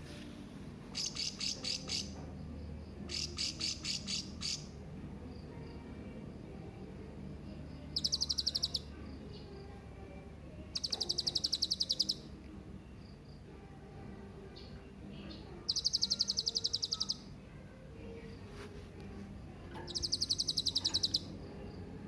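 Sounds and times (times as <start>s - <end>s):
faint bird chirps: 0.9s - 4.8s, 7.4s - 9.7s, 10.6s - 13.4s, 14.5s - 17.4s, 19.7s - 21.9s
parrot shrill rapid calls: 1.0s - 2.1s, 3.1s - 4.7s, 10.8s - 12.2s, 15.7s - 17.2s, 19.9s - 21.3s.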